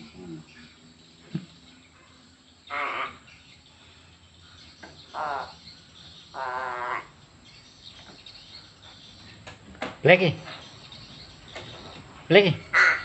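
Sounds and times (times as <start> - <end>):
crow calling: 2.6 - 3.9, 4.8 - 7.3, 12.3 - 13.0.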